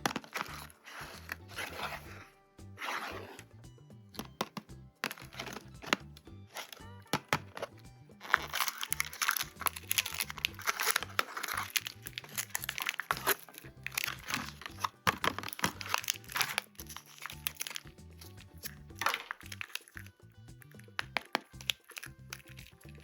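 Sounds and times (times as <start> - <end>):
background music: 0.0 - 23.0
packaging crinkling and tearing: 6.5 - 6.9, 7.5 - 20.1, 20.7 - 23.0.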